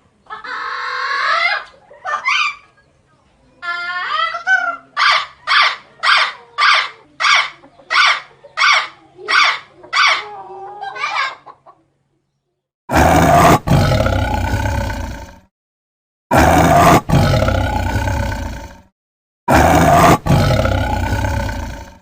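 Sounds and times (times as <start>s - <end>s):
animal rough roar-like call: 12.9s - 15.5s, 16.3s - 18.9s, 19.5s - 22.0s.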